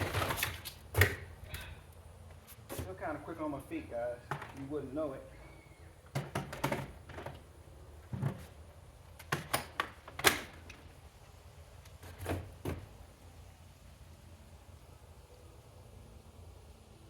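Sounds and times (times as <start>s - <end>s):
boxes knocking and thumping: 6.1s - 7.4s, 8.0s - 8.6s.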